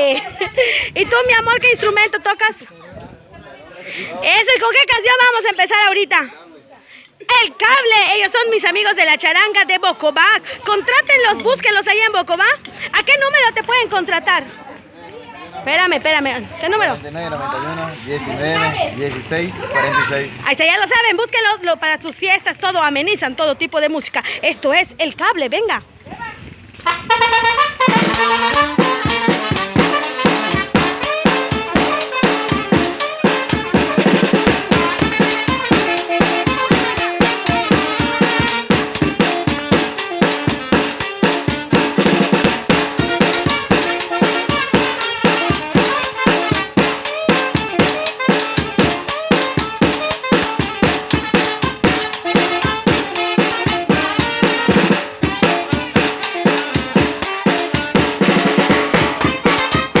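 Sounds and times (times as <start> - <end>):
saxophone: 26.8 - 60.0
trumpet: 26.8 - 60.0
snare drum: 27.1 - 60.0
bass drum beat: 27.5 - 60.0.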